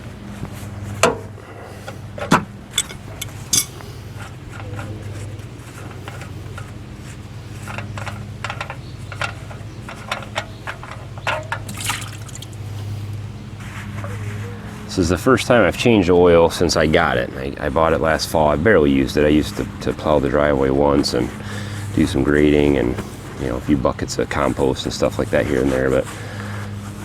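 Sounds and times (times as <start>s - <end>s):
steady low hum: 0.0s - 27.0s
metal hand tools clinking: 2.8s - 3.8s.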